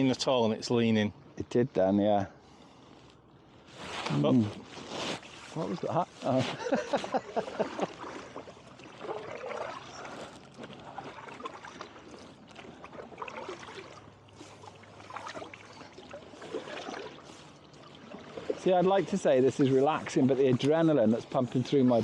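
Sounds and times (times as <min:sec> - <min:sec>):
water trickling and splashing: 0:04.6 - 0:22.0
kayak paddles pulling through water: 0:04.7 - 0:22.0.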